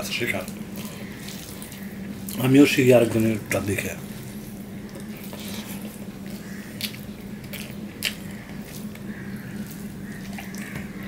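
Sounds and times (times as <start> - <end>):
steady low hum: 0.0 - 11.0
wet chewing and lip smacks: 4.8 - 11.0.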